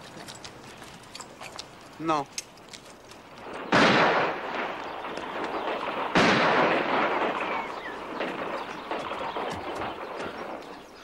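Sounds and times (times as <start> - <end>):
gunshot: 3.5 - 10.8.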